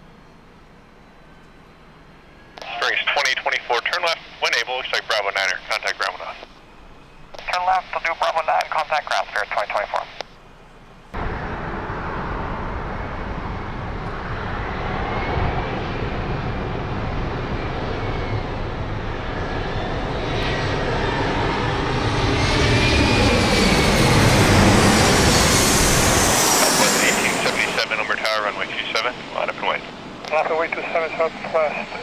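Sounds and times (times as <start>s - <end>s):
faint engine whine: 0.0s - 32.0s
jet engines running: 2.1s - 32.0s.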